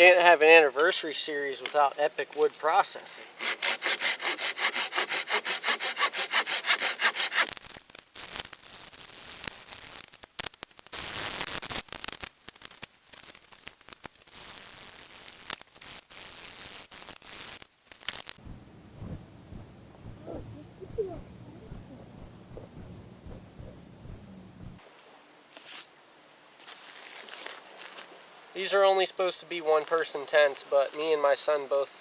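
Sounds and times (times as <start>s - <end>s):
rasping and knocks of wood: 3.4s - 7.5s, 21.2s - 24.8s
hand saw cutting wood: 3.4s - 7.6s.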